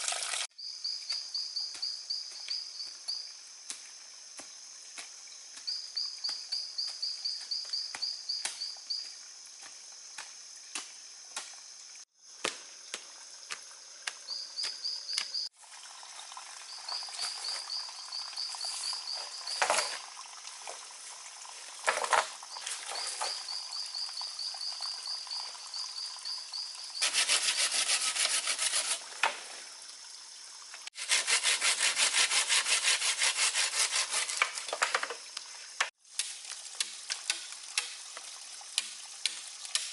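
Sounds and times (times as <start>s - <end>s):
high insect trill: 0.2s - 35.9s
hand tool working wood: 27.0s - 29.4s, 31.0s - 35.1s.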